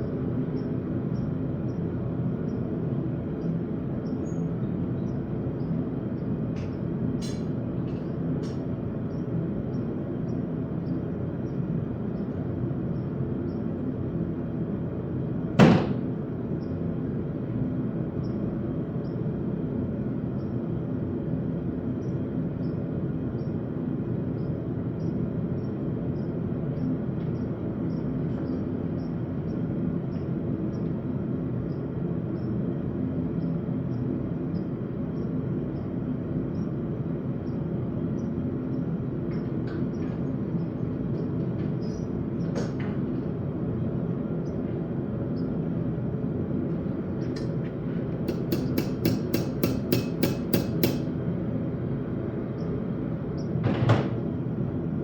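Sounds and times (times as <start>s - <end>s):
hammer striking steel on anvil: 48.3s - 51.1s.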